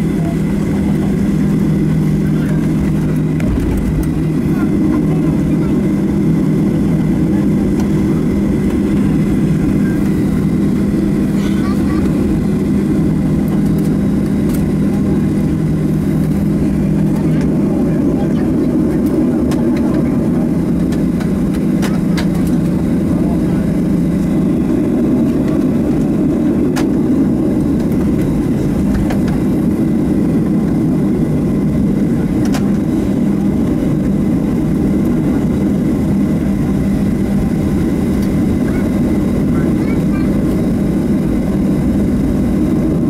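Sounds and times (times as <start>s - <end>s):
jet engines rumbling: 0.0s - 43.0s.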